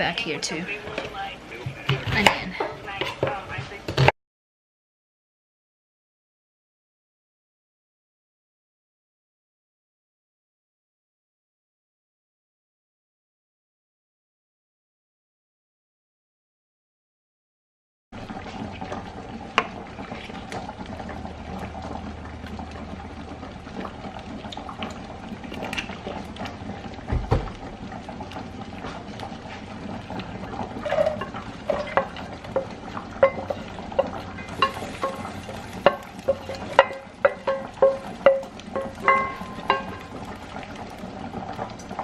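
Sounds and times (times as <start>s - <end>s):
food bubbling and sizzling: 0.0s - 4.1s, 18.2s - 42.0s
utensil clinking against metal pan: 30.8s - 40.1s.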